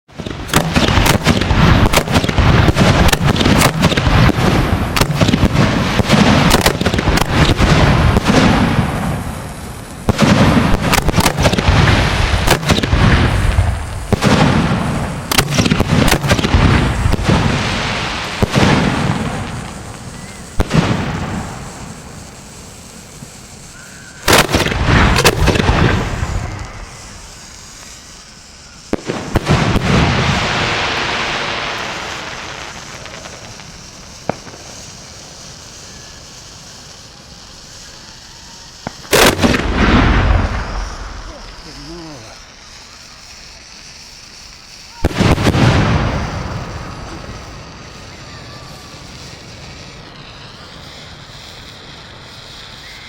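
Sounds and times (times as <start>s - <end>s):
fireworks banging: 0.1s - 53.0s.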